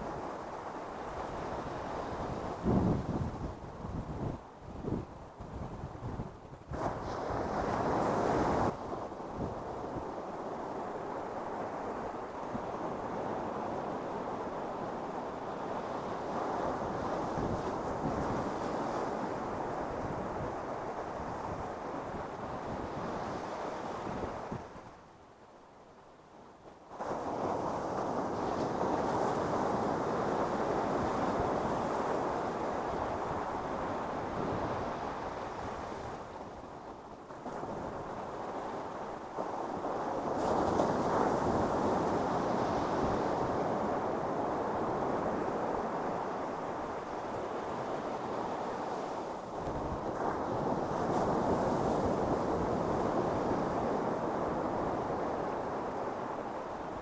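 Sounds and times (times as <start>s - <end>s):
waves breaking on beach: 6.7s - 25.0s, 26.9s - 57.0s.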